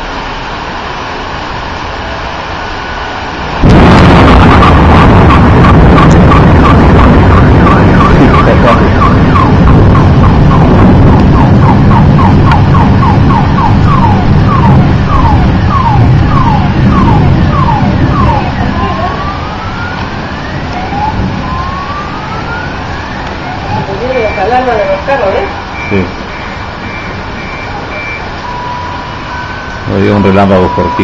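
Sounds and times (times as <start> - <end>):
heavy rain: 0.0 - 31.0
thunder rumbling: 0.0 - 31.0
car alarm: 3.6 - 19.9, 23.5 - 31.0.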